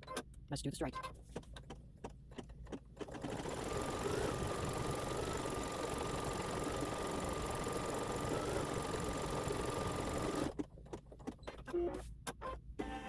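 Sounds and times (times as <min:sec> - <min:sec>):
embroidery machine stitching: 0:03.0 - 0:10.6.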